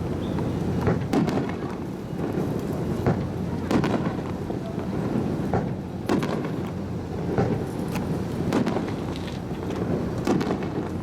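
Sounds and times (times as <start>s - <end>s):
constant low rumble: 0.0s - 11.0s
fireworks booms and cracks: 0.4s - 11.0s.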